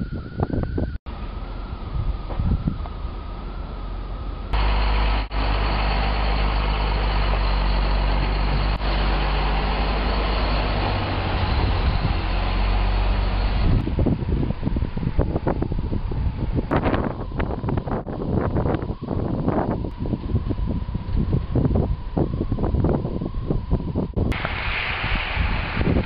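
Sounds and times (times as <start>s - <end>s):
wind on microphone: 0.0s - 1.0s, 1.7s - 3.1s, 10.6s - 26.0s
heavy vehicle engine running: 1.1s - 18.0s.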